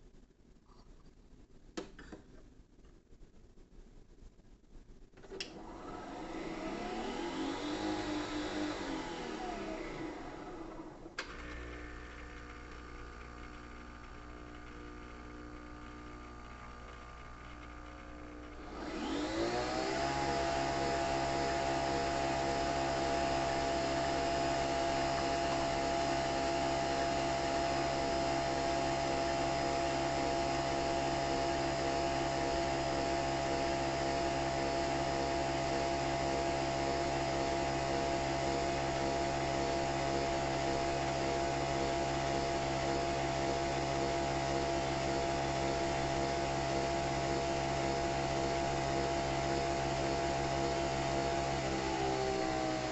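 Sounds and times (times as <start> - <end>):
coffee machine motor whirring: 5.5 - 35.6.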